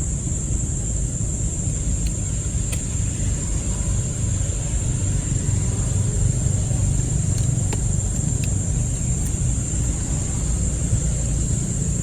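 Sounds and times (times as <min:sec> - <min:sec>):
faint clicks: 0:07.0 - 0:10.3.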